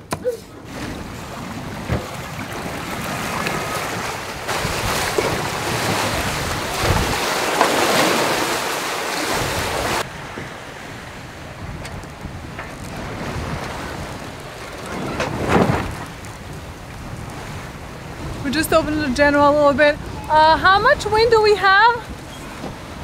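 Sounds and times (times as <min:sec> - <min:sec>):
water rushing past boat: 0:00.0 - 0:23.0
wind buffeting microphone: 0:00.6 - 0:23.0.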